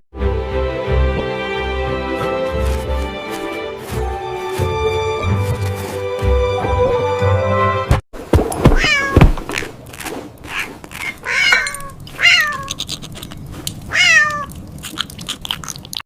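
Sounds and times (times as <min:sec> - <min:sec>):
cat meowing: 0:08.8 - 0:09.2, 0:11.0 - 0:12.8, 0:13.9 - 0:14.6.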